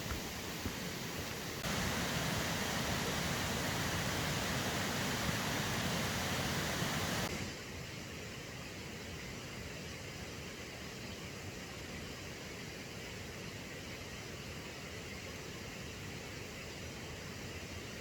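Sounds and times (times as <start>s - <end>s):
stream rushing: 0.0s - 7.3s.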